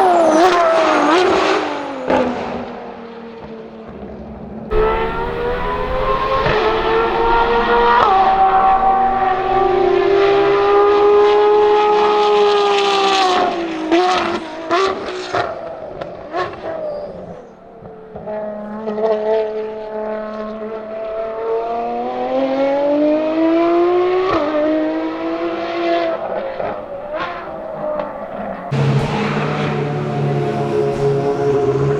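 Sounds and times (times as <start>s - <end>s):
exhaust cracks: 4.7s - 11.2s
race car engine revving: 4.7s - 11.6s.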